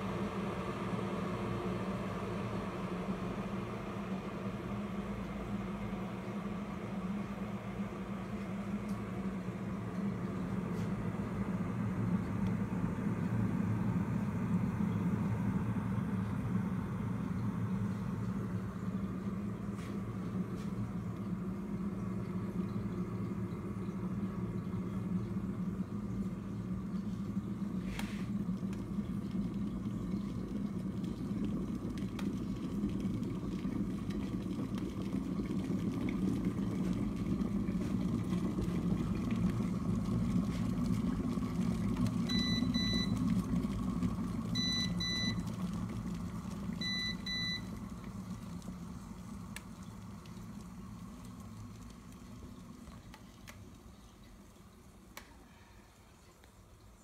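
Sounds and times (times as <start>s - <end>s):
kettle heating water rumbling: 0.0s - 57.0s
kettle electronic beep: 42.0s - 43.5s, 44.4s - 45.6s, 46.7s - 48.1s.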